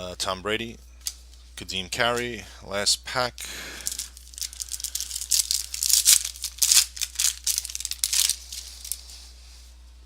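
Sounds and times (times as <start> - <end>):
cards rustling: 3.8 - 9.3
wrapper crinkling: 3.8 - 9.3.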